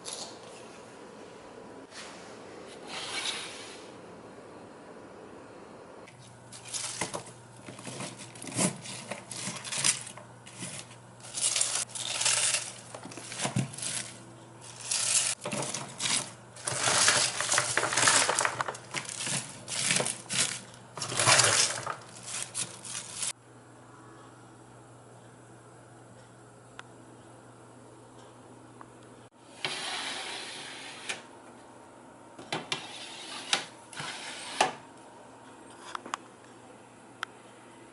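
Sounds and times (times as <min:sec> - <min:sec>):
cabbage rustling and crunching: 0:06.5 - 0:23.3.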